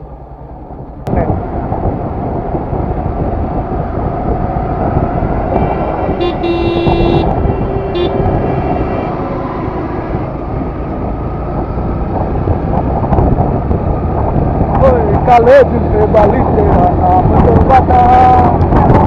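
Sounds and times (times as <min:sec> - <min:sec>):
wind and road noise: 0:00.0 - 0:19.0
vehicle horn honking: 0:05.4 - 0:09.7.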